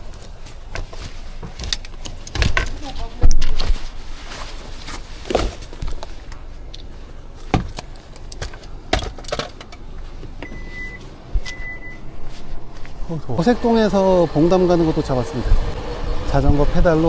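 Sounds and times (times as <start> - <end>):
phone beep: 10.4 - 12.1.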